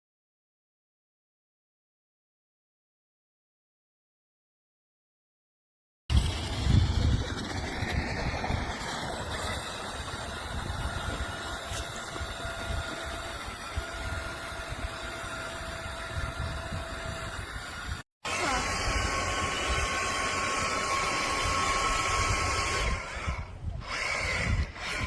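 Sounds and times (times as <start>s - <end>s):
low noisy rumble: 6.1s - 11.7s
toy electric motor whine: 6.1s - 25.0s.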